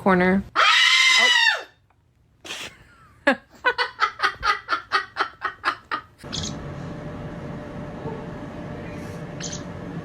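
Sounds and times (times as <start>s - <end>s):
parrot screaming: 0.6s - 1.8s.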